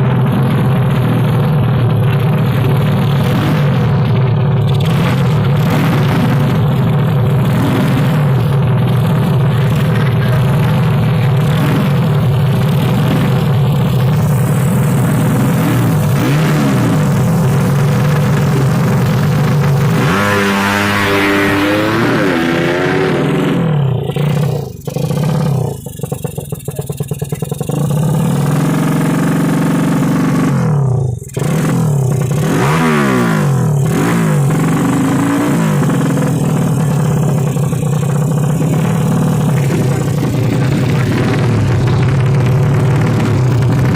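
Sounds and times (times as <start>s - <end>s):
motorcycle engines revving: 0.0s - 43.9s.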